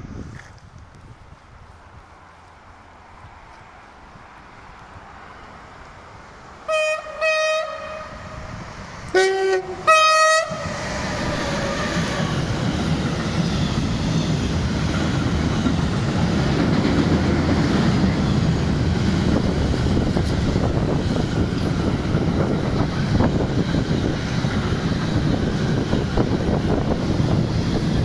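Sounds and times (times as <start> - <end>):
locomotive horn blasts: 6.7 - 8.5, 9.1 - 10.8
train wagons rumbling and clattering: 7.0 - 28.0.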